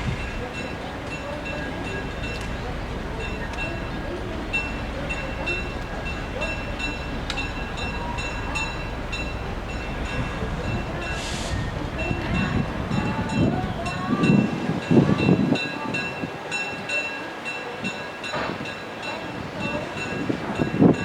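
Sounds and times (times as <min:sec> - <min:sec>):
low rumbling: 0:00.0 - 0:14.3
train rumbling by: 0:00.0 - 0:21.0
high-pitched ringing tick: 0:00.6 - 0:04.0, 0:04.6 - 0:11.2.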